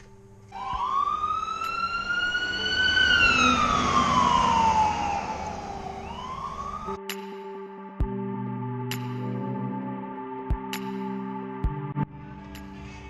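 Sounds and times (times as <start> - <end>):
siren wailing: 0.5 - 7.0.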